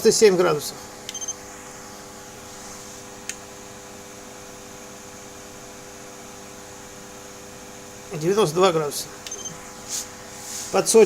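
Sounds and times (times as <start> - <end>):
electrical hum: 0.0 - 11.0
faint fan hiss: 8.1 - 11.0.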